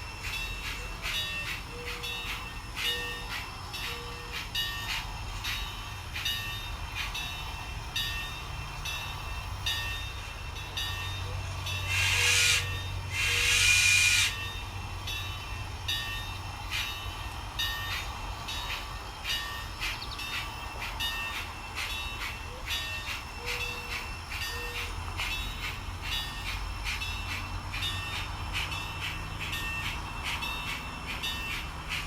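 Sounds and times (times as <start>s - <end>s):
model steam locomotive chuffing: 0.0s - 32.0s
hissing steam blasts: 11.4s - 15.0s.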